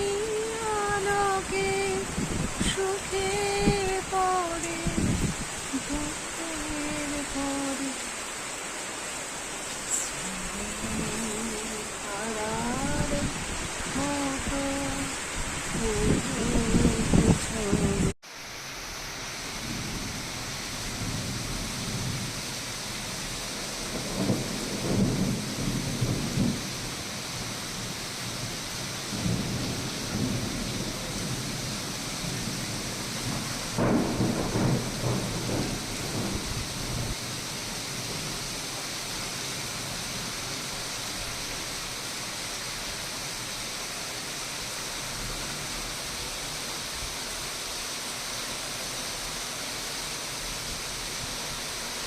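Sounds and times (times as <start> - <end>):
steady rain: 0.0 - 52.0
thunder rolling: 23.8 - 27.0, 32.3 - 37.2.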